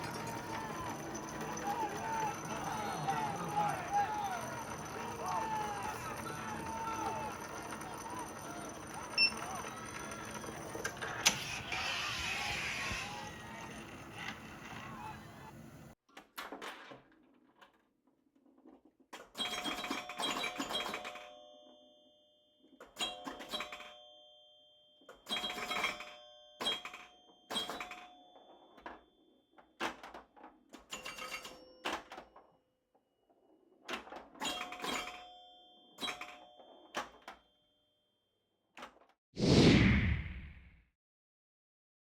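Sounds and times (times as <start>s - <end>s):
loud whoosh: 39.4s - 40.8s.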